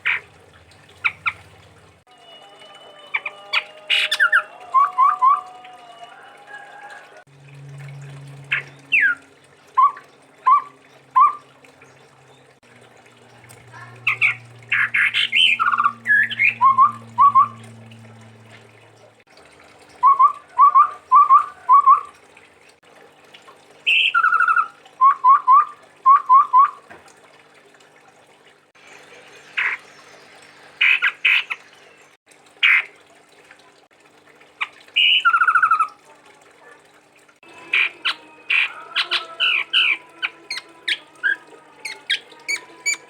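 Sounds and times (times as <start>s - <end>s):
bird whistling song: 3.1s - 5.7s, 9.8s - 11.5s, 14.1s - 17.6s, 20.0s - 22.1s, 23.9s - 26.8s, 35.0s - 35.9s
low hum: 7.3s - 10.0s, 12.0s - 19.2s
harsh bird calls: 14.0s - 17.6s, 35.0s - 36.0s, 37.6s - 43.0s.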